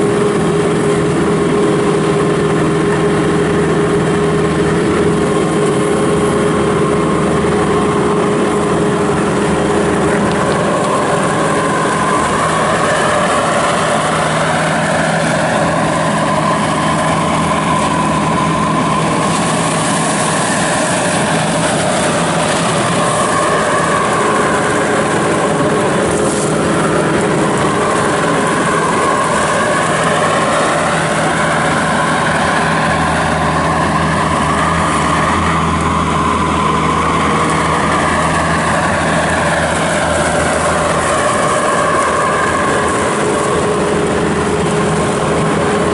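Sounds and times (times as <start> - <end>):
diesel engine running: 0.0 - 45.9
whine rising and falling: 0.0 - 45.9.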